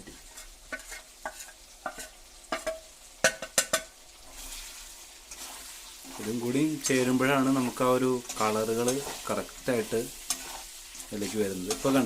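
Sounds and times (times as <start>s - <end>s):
spoon scraping and knocking pot: 0.0s - 3.9s, 10.2s - 12.0s
chicken frying with sizzle: 0.0s - 12.0s.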